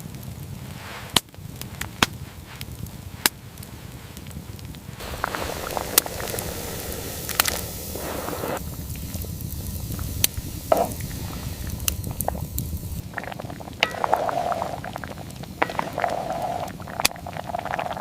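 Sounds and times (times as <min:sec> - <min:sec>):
bubbling with clicks and crackles: 0:00.0 - 0:18.0
low rumbling noise: 0:04.8 - 0:18.0.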